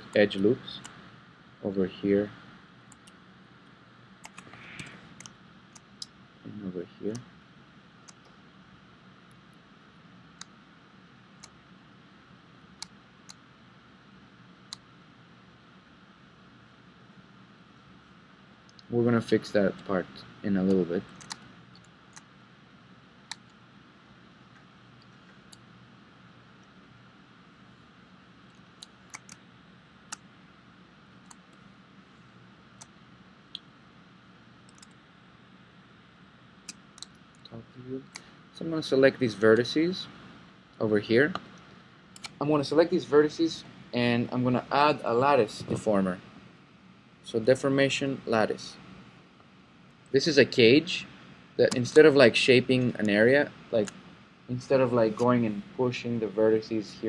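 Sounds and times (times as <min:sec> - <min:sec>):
faint room hum: 0:00.0 - 0:57.0
computer mouse clicking: 0:02.9 - 0:03.2, 0:04.2 - 0:06.1, 0:08.0 - 0:08.4, 0:20.7 - 0:22.3, 0:28.5 - 0:29.4, 0:34.7 - 0:35.0, 0:36.6 - 0:37.5, 0:41.3 - 0:42.4.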